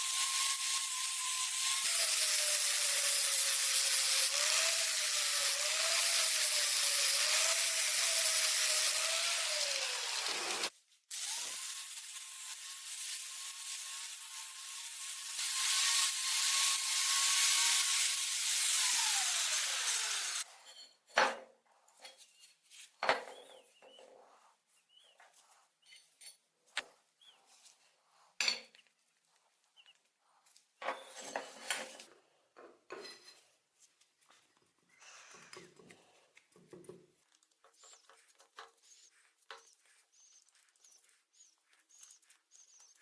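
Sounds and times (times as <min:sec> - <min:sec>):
power tool whine: 0:00.0 - 0:20.4.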